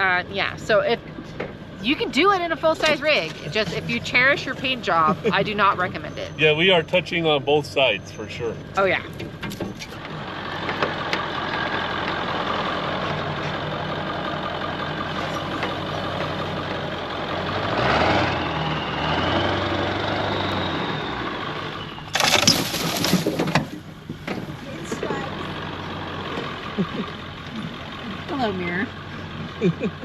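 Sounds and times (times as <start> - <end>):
truck engine running at low speed: 0.0 - 30.0
branches scraping along vehicle: 15.0 - 17.0, 21.4 - 29.6.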